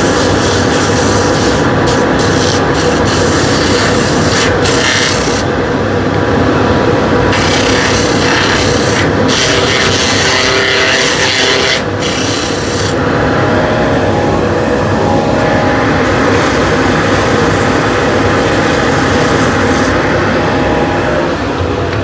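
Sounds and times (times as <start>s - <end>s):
sandpaper on spinning wood: 0.0s - 5.5s, 7.3s - 13.0s
wood lathe running: 0.0s - 22.0s.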